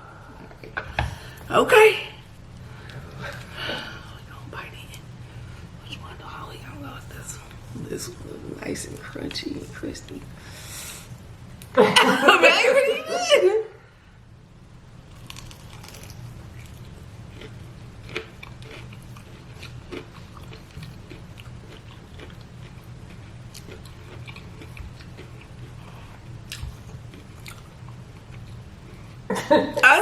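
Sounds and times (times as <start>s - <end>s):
steady low hum: 0.0s - 30.0s
chewing crispy fried chicken: 15.1s - 29.2s.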